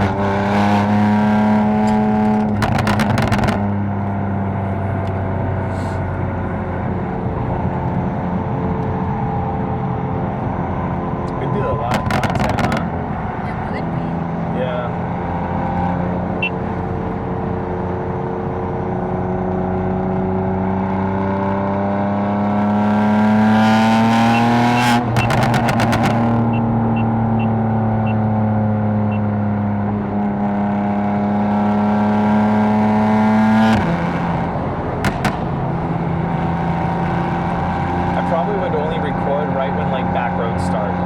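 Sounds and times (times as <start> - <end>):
car exhaust under load: 0.0 - 18.7, 23.3 - 30.4, 32.5 - 41.0
exhaust crackles and pops: 1.8 - 4.1, 11.2 - 13.4, 24.4 - 27.5, 34.9 - 37.2.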